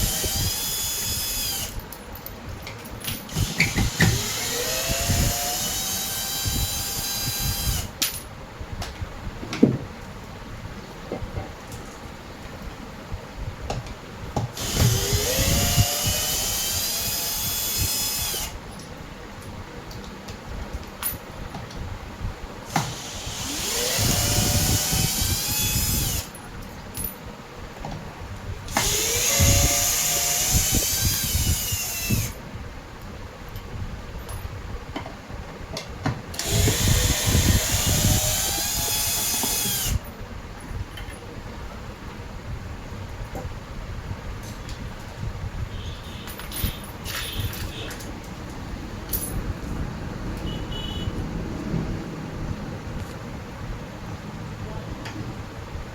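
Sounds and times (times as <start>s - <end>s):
power drill whining: 0.0s - 1.8s, 3.3s - 7.9s, 14.6s - 18.6s, 22.7s - 26.3s, 28.7s - 32.4s, 36.4s - 40.0s.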